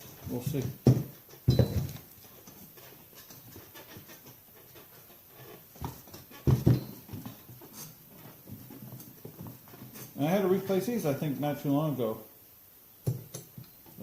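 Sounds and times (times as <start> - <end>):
faint handling noise: 0.0 - 11.0.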